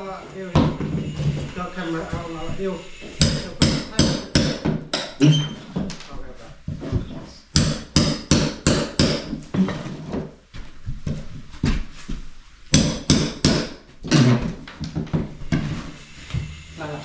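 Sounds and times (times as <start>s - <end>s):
hammer blows: 0.5s - 5.4s.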